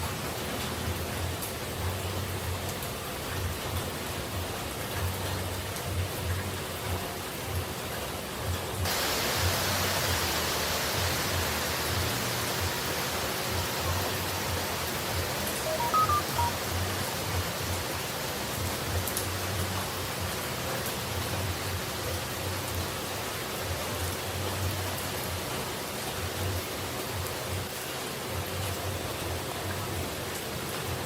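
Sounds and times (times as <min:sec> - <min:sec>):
hiss of falling water: 0:08.0 - 0:31.0
faint high tones: 0:15.5 - 0:16.6.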